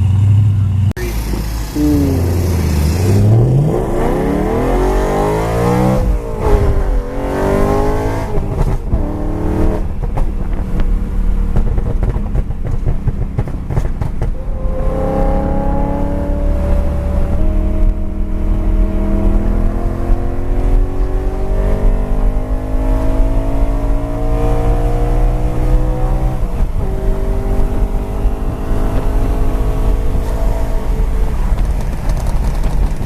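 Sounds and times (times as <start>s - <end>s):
steady engine note: 0.0s - 12.1s, 14.2s - 32.4s
car engine revving hard: 1.0s - 10.1s, 14.4s - 32.1s
exhaust crackling pops: 8.2s - 9.2s, 9.8s - 14.4s, 30.1s - 33.0s.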